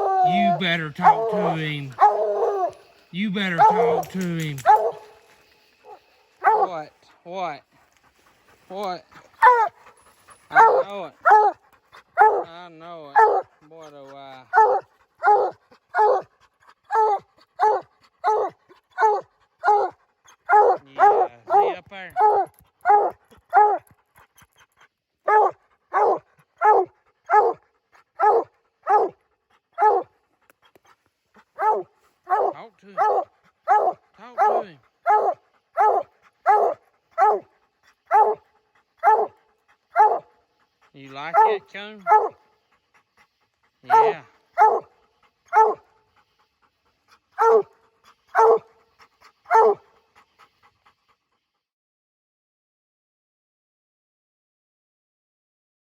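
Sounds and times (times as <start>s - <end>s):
dog barking loudly: 0.0s - 2.8s, 3.4s - 5.2s, 5.9s - 6.8s, 9.4s - 9.8s, 10.5s - 11.6s, 12.2s - 12.5s, 13.1s - 13.5s, 14.5s - 16.3s, 16.9s - 19.9s, 20.5s - 23.8s, 25.3s - 27.6s, 28.2s - 29.2s, 29.8s - 30.1s, 31.6s - 37.5s, 38.1s - 38.4s, 39.0s - 39.3s, 39.9s - 40.3s, 41.3s - 42.4s, 43.9s - 44.9s, 45.5s - 45.8s, 47.4s - 47.7s, 48.3s - 48.7s, 49.5s - 49.8s.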